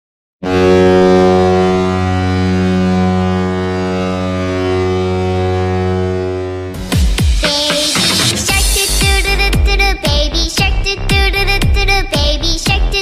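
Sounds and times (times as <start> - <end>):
low drone tone: 0.5 - 7.0.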